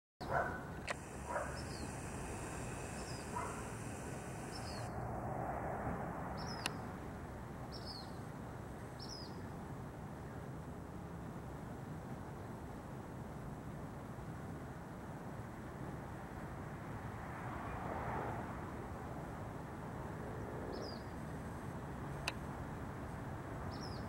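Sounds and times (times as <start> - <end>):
bird chip calls: 0.9 - 4.9.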